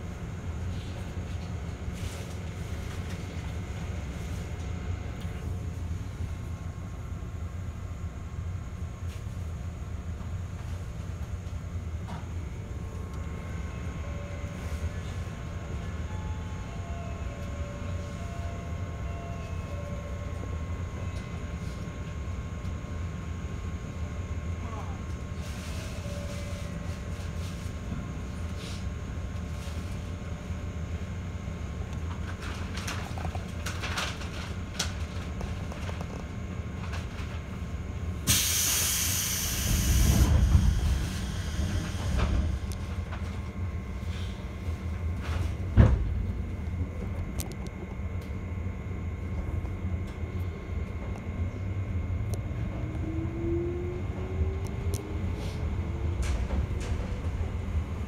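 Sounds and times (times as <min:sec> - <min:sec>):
train low rumble: 0:00.0 - 0:58.0
faint high whines: 0:12.5 - 0:22.3, 0:25.4 - 0:27.7.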